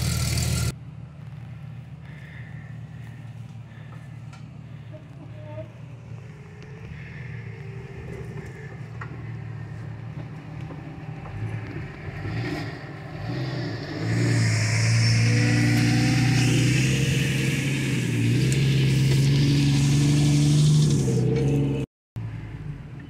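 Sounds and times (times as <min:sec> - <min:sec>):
car engine revving loud: 0:06.9 - 0:21.8.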